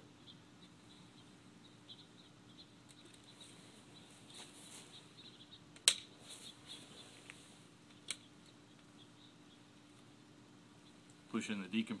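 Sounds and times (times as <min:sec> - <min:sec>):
faint steady hum: 0:00.0 - 0:12.0
faint ticks and rustles: 0:00.2 - 0:11.9.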